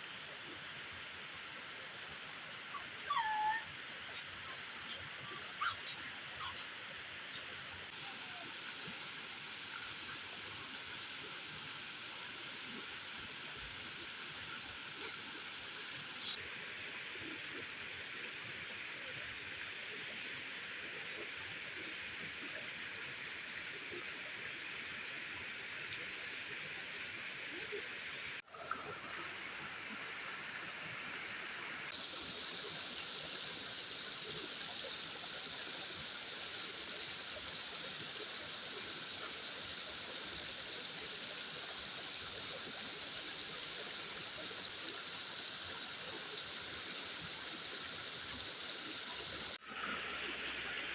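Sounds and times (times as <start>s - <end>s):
rushing water: 0.0s - 50.9s.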